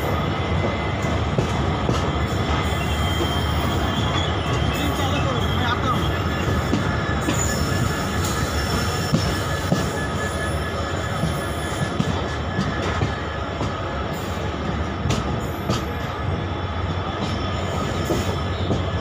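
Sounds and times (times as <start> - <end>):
train wheels rumbling on rail: 0.0 - 19.0
high wheel squeal: 2.1 - 13.5.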